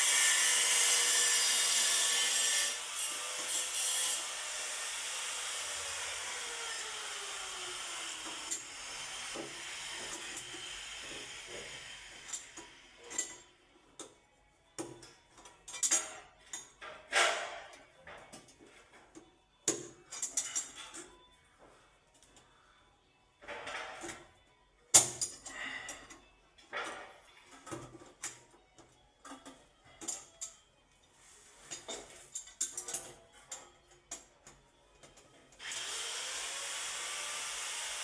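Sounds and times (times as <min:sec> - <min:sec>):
steady work noise: 0:00.0 - 0:14.1, 0:25.4 - 0:38.0
tools clicking and knocking: 0:31.7 - 0:35.3.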